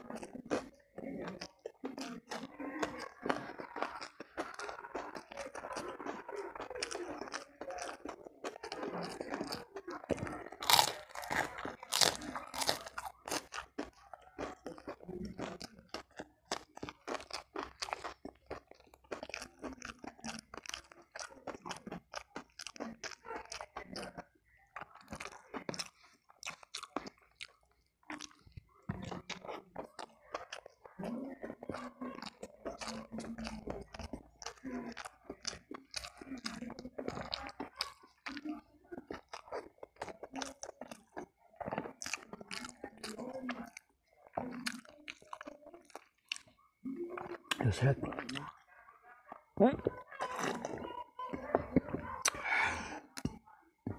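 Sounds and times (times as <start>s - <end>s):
person crunching and chewing: 0.0s - 48.6s, 49.8s - 53.9s.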